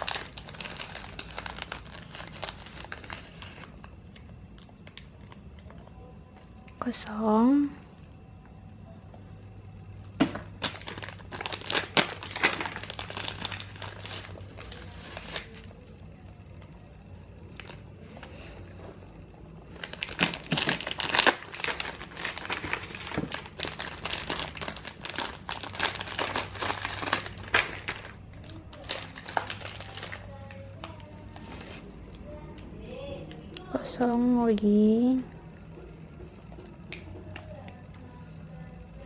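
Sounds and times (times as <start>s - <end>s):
plastic wrappers crinkling and tearing: 0.0s - 6.9s, 10.0s - 16.2s, 17.4s - 32.4s.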